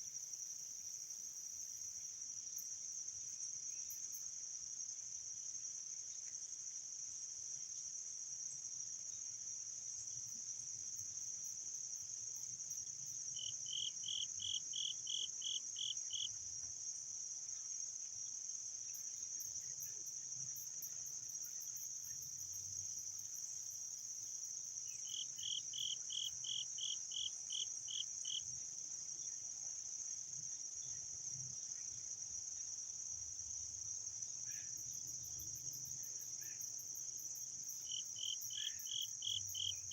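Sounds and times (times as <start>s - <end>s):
cricket chorus trilling: 0.0s - 5.5s, 7.5s - 39.9s.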